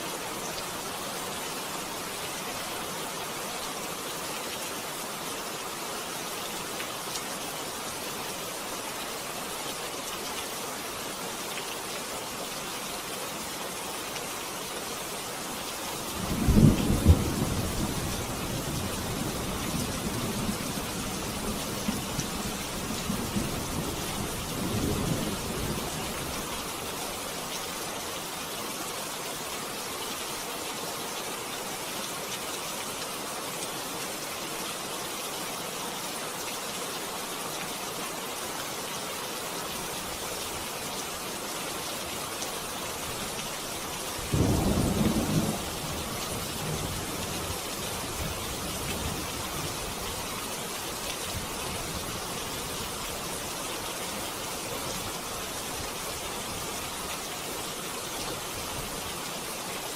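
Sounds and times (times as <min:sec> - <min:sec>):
steady rain: 0:00.0 - 0:59.9
thunder rumbling: 0:44.4 - 0:45.8.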